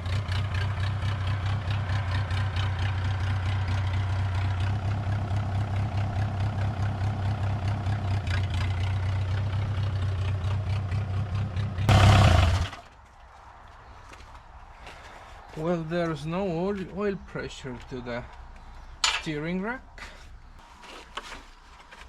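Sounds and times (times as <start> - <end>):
small engine idling: 11.8 - 12.9
short loud engine burst: 11.9 - 12.9.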